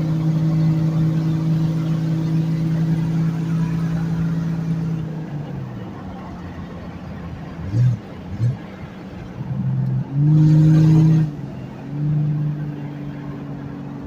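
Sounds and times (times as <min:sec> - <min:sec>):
straight-piped engine exhaust revving: 0:00.0 - 0:05.1, 0:07.6 - 0:09.0, 0:09.6 - 0:13.7.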